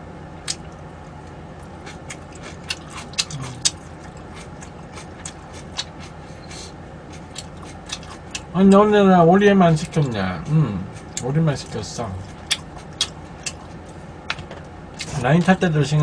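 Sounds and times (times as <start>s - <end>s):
faint steady hum: 0.0s - 16.0s
chewing clicks and smacks: 0.4s - 6.2s, 7.1s - 8.5s, 12.2s - 15.2s.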